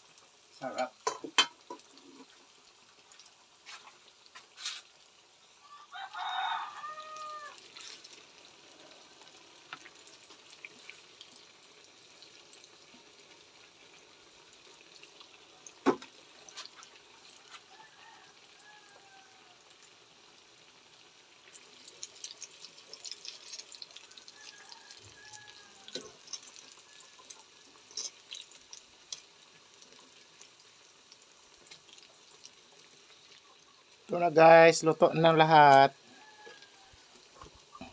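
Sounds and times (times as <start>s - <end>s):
rooster crowing: 5.6s - 7.9s, 17.4s - 19.7s, 24.0s - 27.4s, 35.5s - 37.9s.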